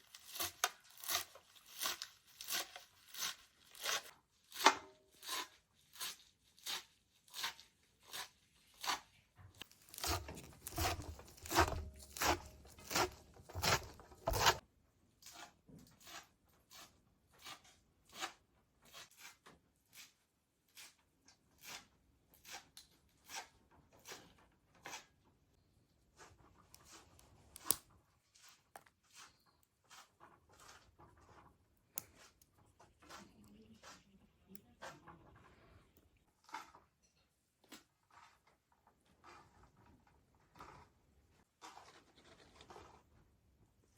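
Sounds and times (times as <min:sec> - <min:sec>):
crisp food preparation strokes: 0:05.2 - 0:14.6.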